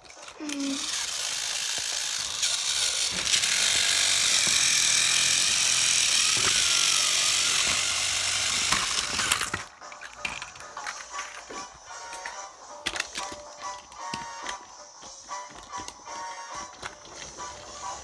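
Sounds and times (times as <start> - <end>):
small mechanism whirring and rattling: 0.0 - 18.0.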